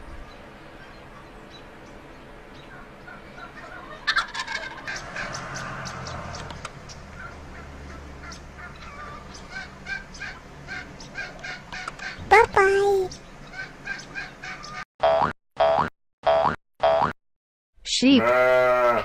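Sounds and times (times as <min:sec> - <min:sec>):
turkey gobbling: 0:02.7 - 0:05.7, 0:07.1 - 0:12.2, 0:13.5 - 0:14.8.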